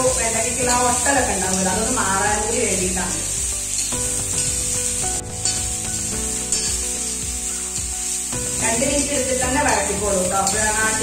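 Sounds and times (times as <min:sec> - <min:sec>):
background music with held notes: 0:00.0 - 0:11.0
okra sizzling in hot oil: 0:00.0 - 0:11.0
metal spatula scraping pan: 0:05.4 - 0:07.2.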